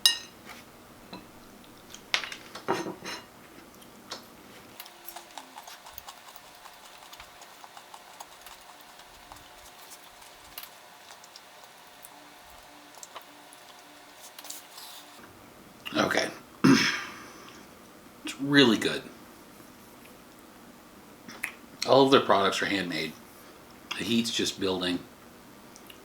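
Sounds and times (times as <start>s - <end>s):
chewing clicks: 4.8s - 11.5s.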